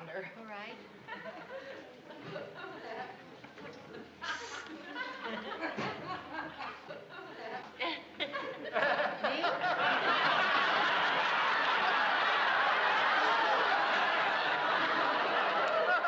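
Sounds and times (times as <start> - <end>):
studio audience laughing: 4.3 - 16.0.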